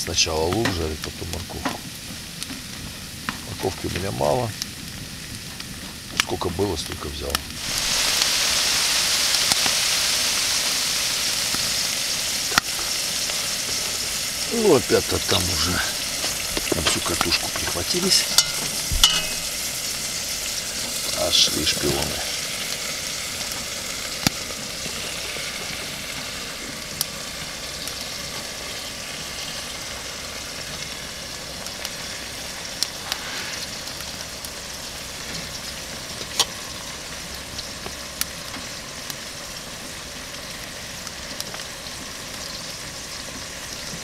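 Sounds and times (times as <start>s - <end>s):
mushrooms sizzling in a pot: 0.0s - 44.0s.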